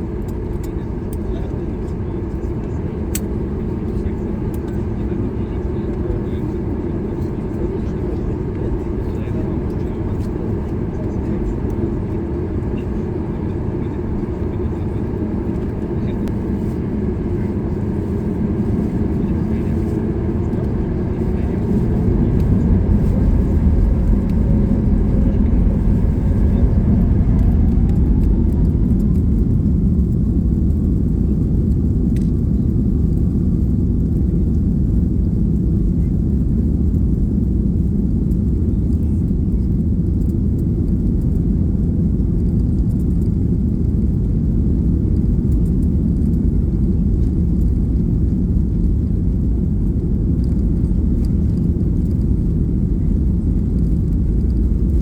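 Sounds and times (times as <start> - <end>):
jet engine rumble in cabin: 0.0 - 55.0
jet engine whine: 0.0 - 55.0.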